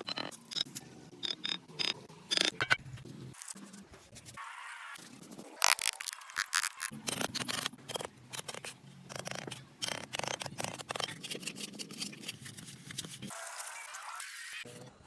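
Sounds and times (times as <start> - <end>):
sharp clicks and snips: 5.6 - 11.9.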